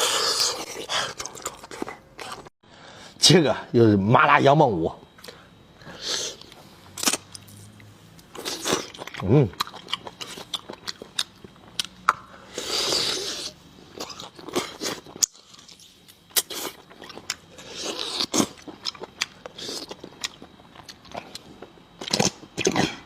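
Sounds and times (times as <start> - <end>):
person chewing and biting meat: 8.3 - 22.9.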